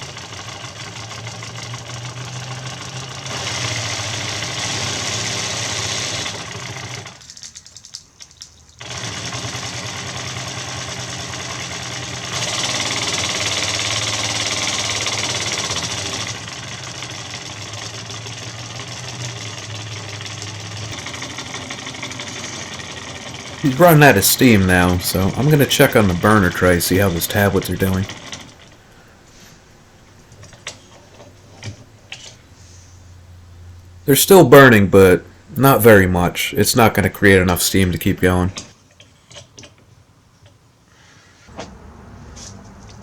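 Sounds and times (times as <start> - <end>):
steam engine chuffing: 0.0 - 7.7, 8.8 - 38.7.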